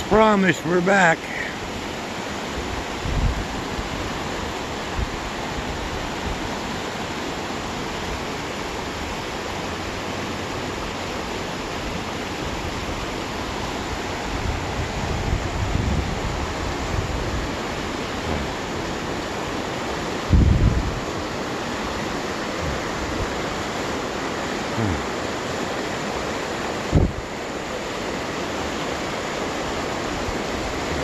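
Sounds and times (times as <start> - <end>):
wind rushing over microphone: 2.5 - 6.9, 11.8 - 24.0, 26.8 - 27.4.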